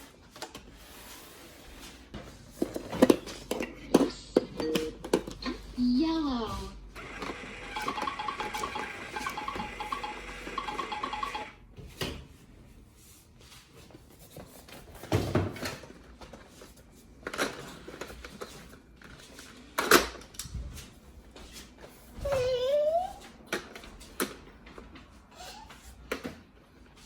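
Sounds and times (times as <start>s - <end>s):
plastic toys knocking and clattering: 2.2s - 5.7s, 17.2s - 18.6s.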